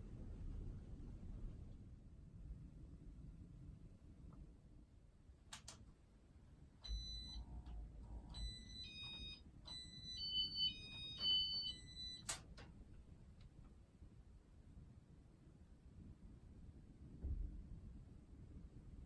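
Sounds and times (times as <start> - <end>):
short electronic beeps: 6.8 - 7.5, 8.3 - 12.4.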